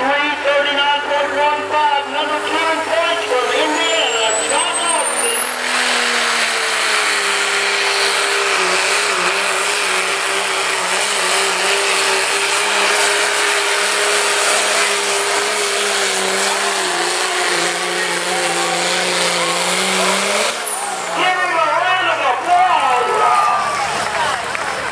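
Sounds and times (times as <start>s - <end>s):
truck engine high-revving drone: 0.0s - 24.9s.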